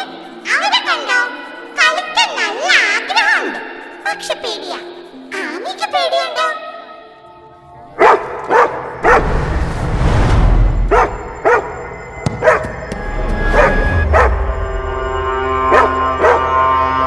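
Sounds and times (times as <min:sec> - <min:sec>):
background music: 0:00.0 - 0:17.0
low rumble: 0:09.0 - 0:12.2.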